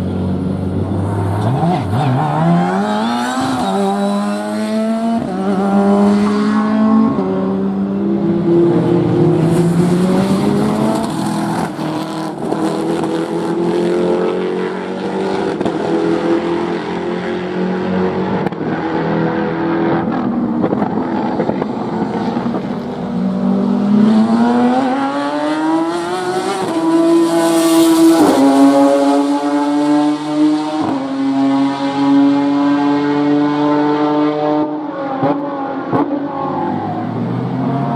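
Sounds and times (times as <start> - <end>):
race car engines revving: 0.0 - 37.9.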